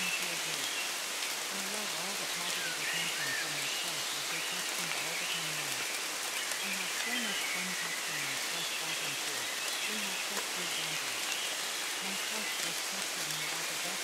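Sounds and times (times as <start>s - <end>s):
steady rain: 0.0s - 14.0s
low-pitched voice speaking: 6.6s - 11.2s.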